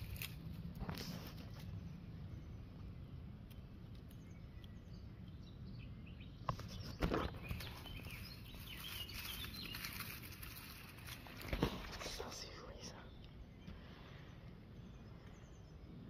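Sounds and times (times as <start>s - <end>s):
faint birdsong: 0.0s - 16.0s
camera handling knocks and rustling: 11.4s - 12.0s.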